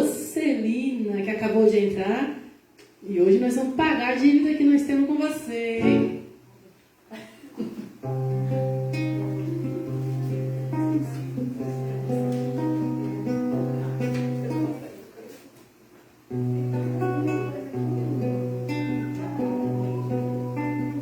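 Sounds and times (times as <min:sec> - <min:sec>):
acoustic guitar playing: 0:05.8 - 0:06.5, 0:07.9 - 0:15.0, 0:16.3 - 0:21.0.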